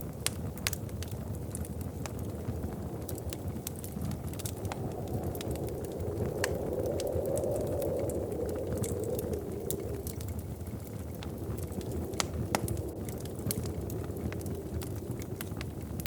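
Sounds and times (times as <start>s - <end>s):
wood fire crackling: 0.0s - 16.0s
low rushing wind: 0.1s - 16.0s.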